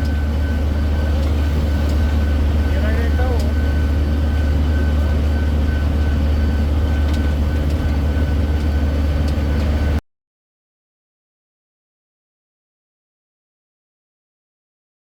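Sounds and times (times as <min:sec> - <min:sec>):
low engine drone: 0:00.0 - 0:10.0
thin steady whine: 0:00.0 - 0:10.0.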